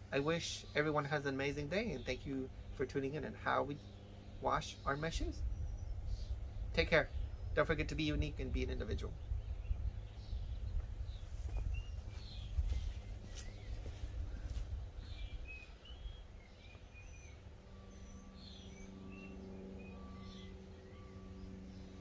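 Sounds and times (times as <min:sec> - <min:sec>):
birds chirping: 0:00.0 - 0:22.0
low hum: 0:00.0 - 0:22.0
wind rumble on microphone: 0:05.0 - 0:17.4.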